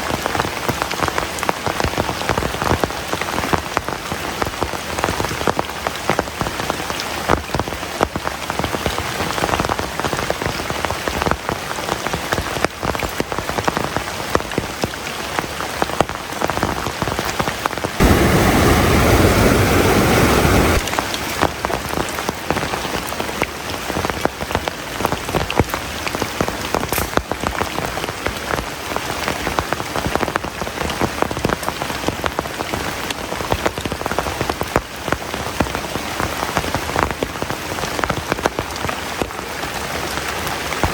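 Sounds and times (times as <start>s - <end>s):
heavy rain falling: 0.0s - 40.9s
deep rushing noise: 18.0s - 21.6s.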